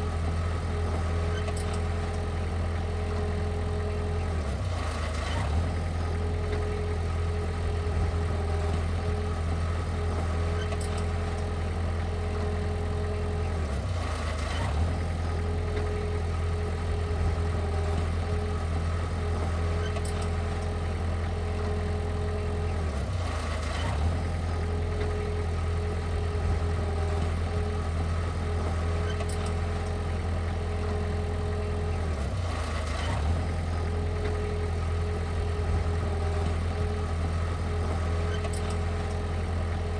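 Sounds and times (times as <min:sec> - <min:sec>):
diesel machinery engine droning: 0:00.0 - 0:39.9.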